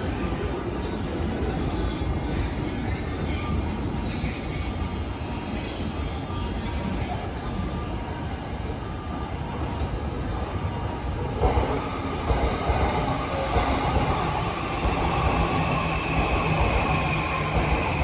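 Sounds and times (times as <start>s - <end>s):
train wheels rumbling: 11.4s - 18.0s.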